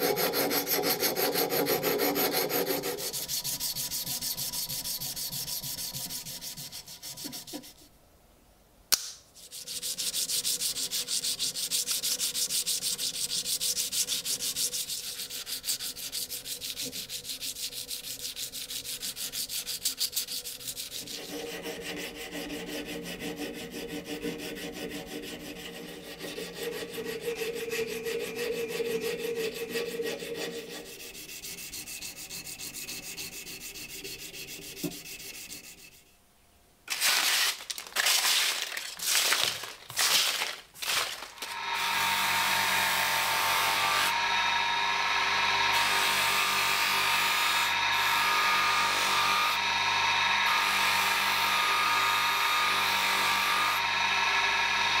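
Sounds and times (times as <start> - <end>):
hand sanding strokes: 0.0 - 7.9, 9.4 - 36.2
small power tool whining: 40.9 - 55.0.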